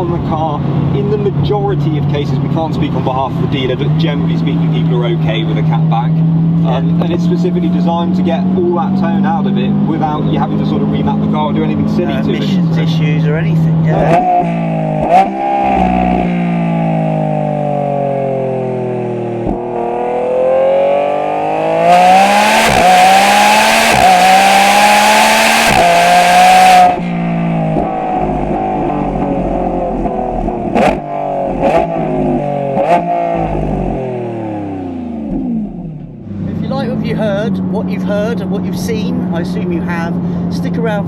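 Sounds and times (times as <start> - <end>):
sports car engine revving: 0.0 - 41.0
exhaust cracks on gear changes: 25.4 - 34.1.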